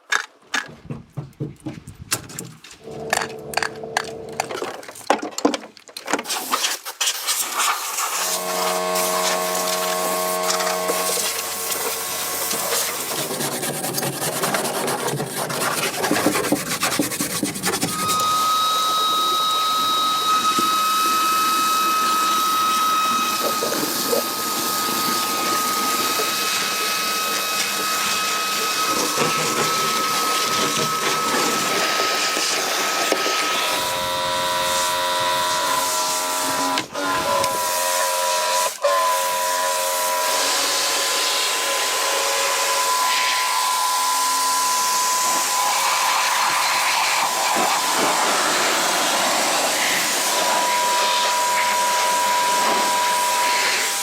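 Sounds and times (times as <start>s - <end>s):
tool clicks and knocks: 0.0s - 6.2s
power tool whining: 7.8s - 54.0s.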